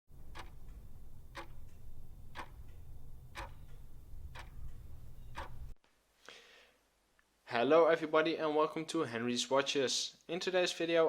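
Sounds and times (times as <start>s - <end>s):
clock ticking: 0.1s - 5.8s.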